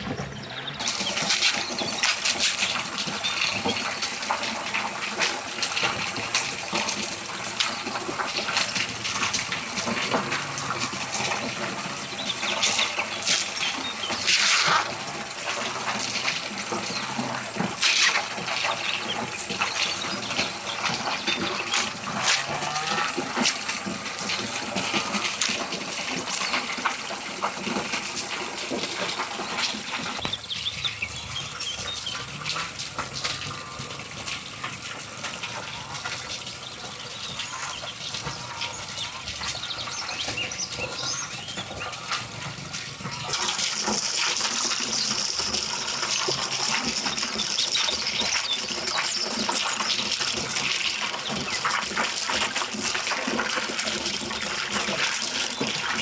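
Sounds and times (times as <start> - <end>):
water rushing: 42.0 - 56.0.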